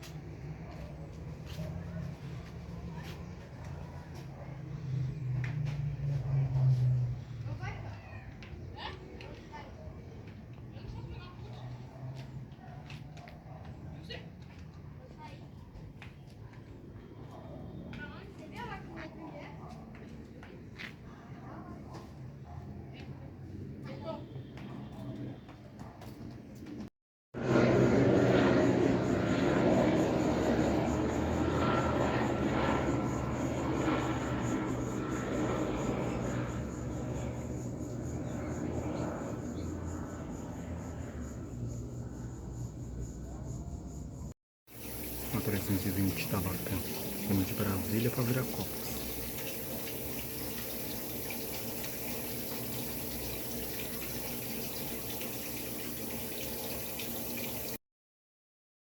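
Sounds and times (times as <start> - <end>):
jet airliner engines running: 27.4 - 43.3, 44.8 - 57.8
faint low hum: 28.4 - 57.8
faint high whine: 44.8 - 57.8.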